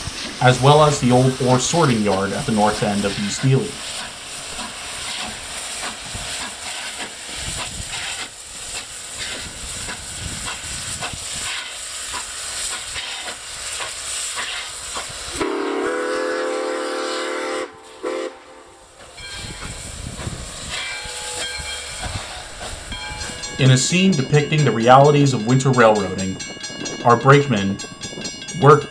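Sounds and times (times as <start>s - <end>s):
steam locomotive hissing: 0.0s - 28.9s
train chime whistle blasts: 15.4s - 28.9s.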